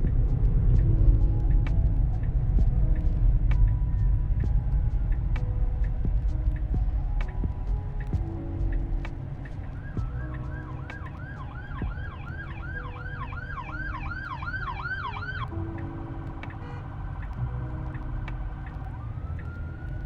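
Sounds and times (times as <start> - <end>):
low road rumble: 0.0 - 20.0
siren yelping: 10.1 - 17.7.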